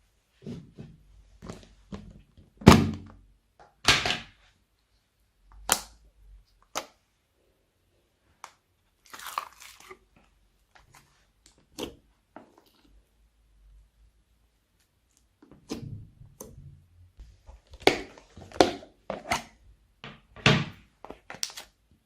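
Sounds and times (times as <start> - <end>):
slime squelching: 8.9 - 13.1.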